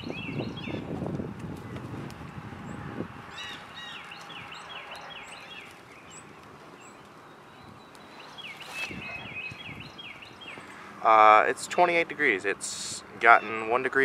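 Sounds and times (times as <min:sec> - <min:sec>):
small birds chirping: 0:00.0 - 0:14.0
rustling: 0:07.9 - 0:10.9.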